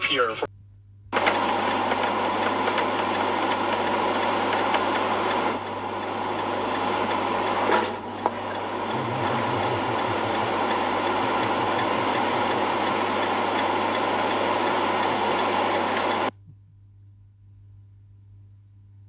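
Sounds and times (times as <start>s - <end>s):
faint ticking: 1.5s - 16.3s.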